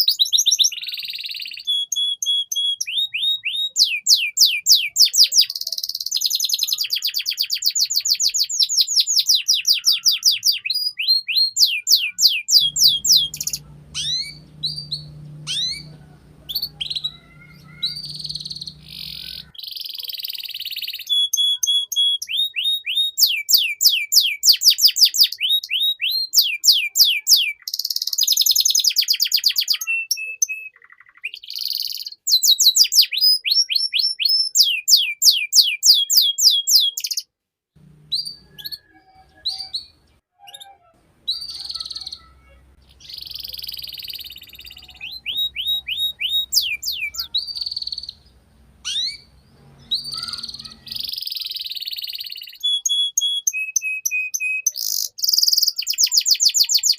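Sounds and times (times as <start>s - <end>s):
canary singing fast trills: 0.0s - 56.9s
faint low hum: 12.6s - 19.5s, 37.8s - 40.2s, 41.0s - 51.2s.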